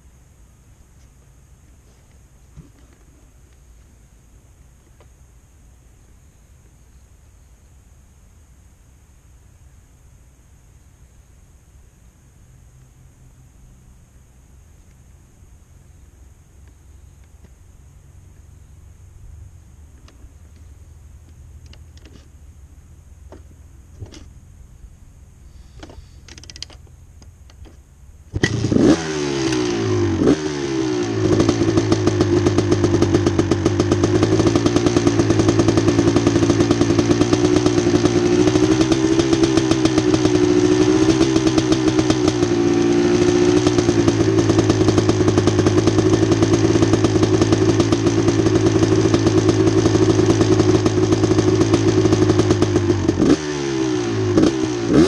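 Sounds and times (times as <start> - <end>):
motorcycle engine starting and revving: 25.6 - 55.0.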